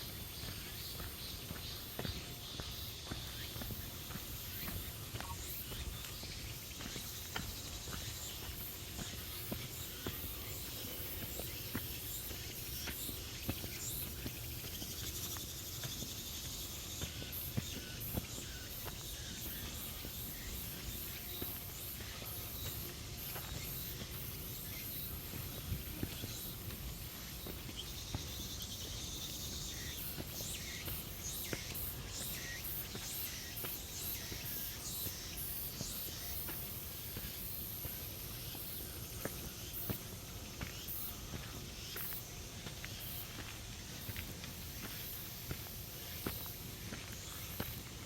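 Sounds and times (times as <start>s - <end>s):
insects chirring: 0.0s - 48.0s.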